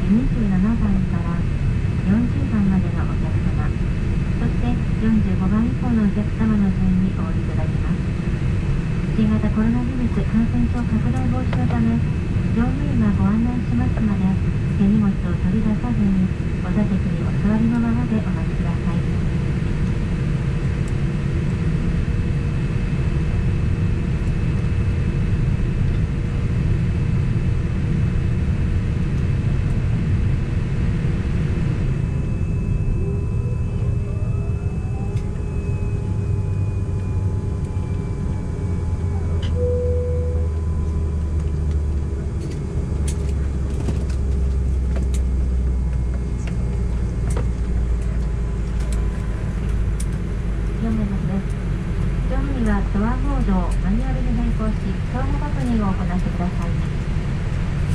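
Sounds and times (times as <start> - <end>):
airplane engine and airframe rumble: 0.0 - 57.9
short tone: 39.1 - 41.1.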